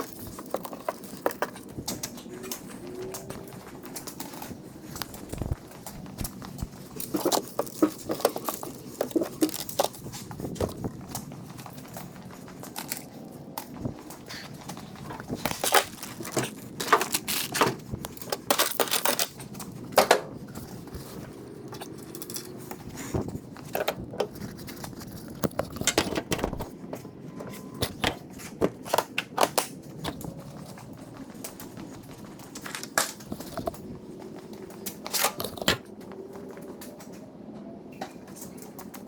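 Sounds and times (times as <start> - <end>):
tools clicking and scraping: 0.0 - 26.7.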